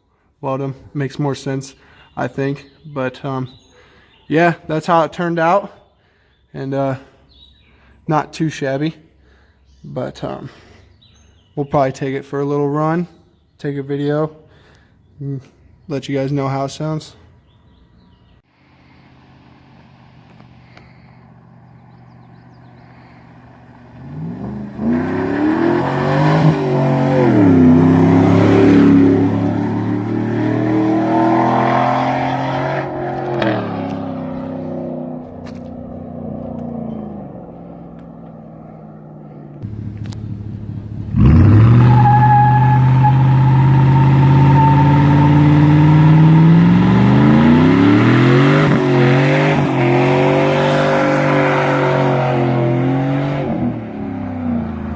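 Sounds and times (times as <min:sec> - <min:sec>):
car engine revving: 0:21.4 - 0:54.9.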